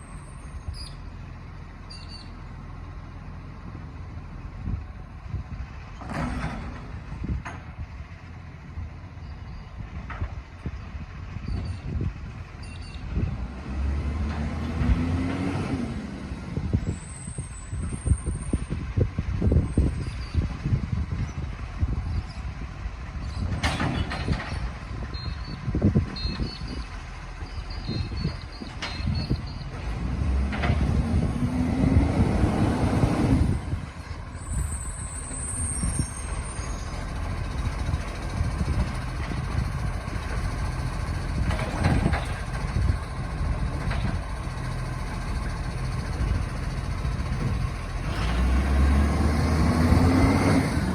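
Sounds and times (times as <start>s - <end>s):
garbage truck rumbling: 0.0s - 50.9s
high squeal: 34.4s - 37.2s.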